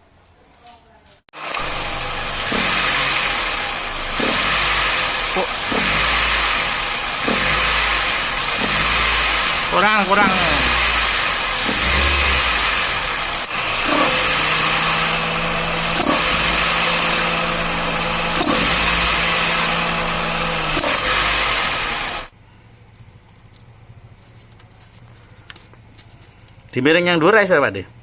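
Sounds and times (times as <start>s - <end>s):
car engine with belt whine: 1.4s - 22.3s.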